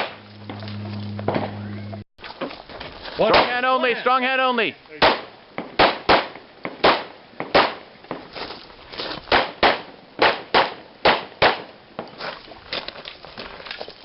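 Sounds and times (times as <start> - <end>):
distant gunshots: 5.0 - 7.9, 9.3 - 11.7
pistol shots: 5.0 - 7.9, 9.3 - 11.8.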